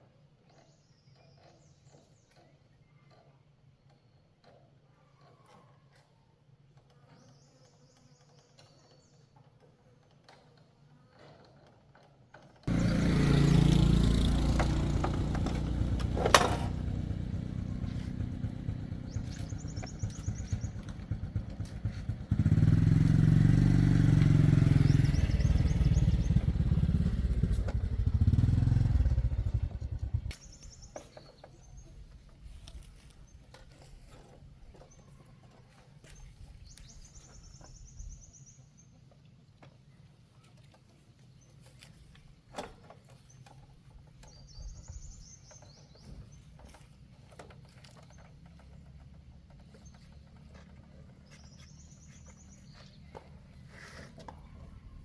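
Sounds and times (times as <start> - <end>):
motorcycle engine running: 12.7 - 38.6, 43.1 - 55.0.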